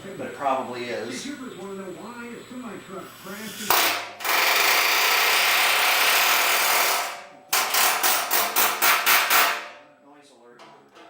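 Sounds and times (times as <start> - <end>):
hammer on steel tank: 7.5 - 9.9.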